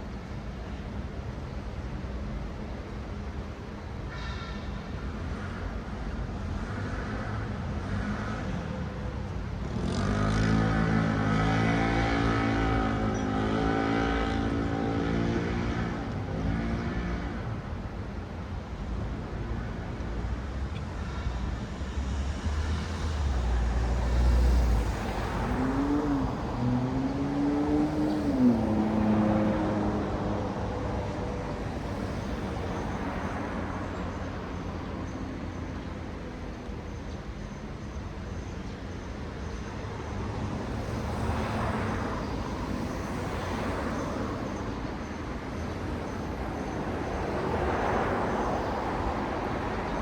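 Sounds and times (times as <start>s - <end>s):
cars passing: 3.4s - 50.0s
loud vehicle engine: 21.0s - 34.6s
engine revving: 22.4s - 33.4s.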